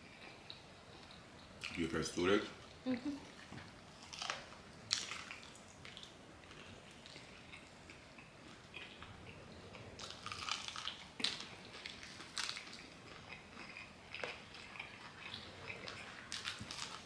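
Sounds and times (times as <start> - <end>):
crunching fried chicken: 4.0 - 9.1, 9.8 - 17.0.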